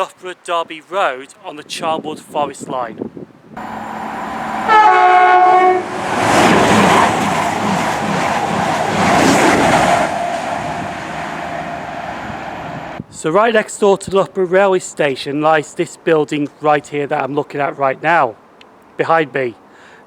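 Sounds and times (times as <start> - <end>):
train horn blast: 3.6 - 7.2, 9.6 - 13.0
train passing with clatter: 3.6 - 13.0.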